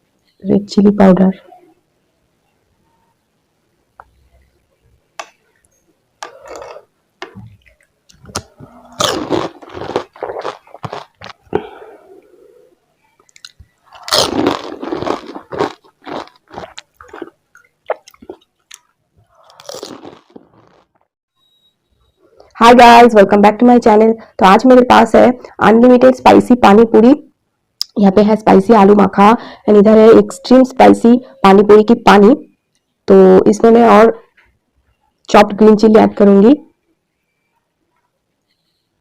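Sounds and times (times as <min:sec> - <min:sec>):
crisp shells crunching when chewed: 0:07.6 - 0:11.7, 0:13.2 - 0:21.0.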